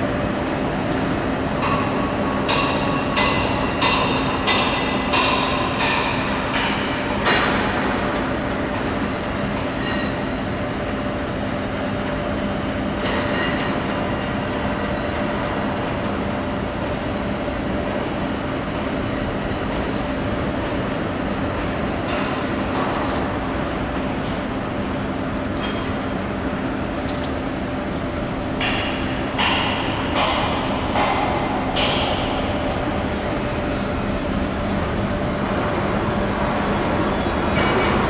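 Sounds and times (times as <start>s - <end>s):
machine running with low hum: 0.0s - 38.0s.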